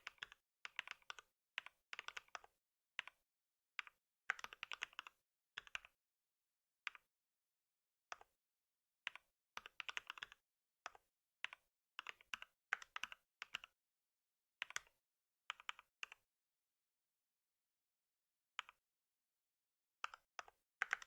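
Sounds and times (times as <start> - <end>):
computer keyboard typing: 9.6 - 10.4.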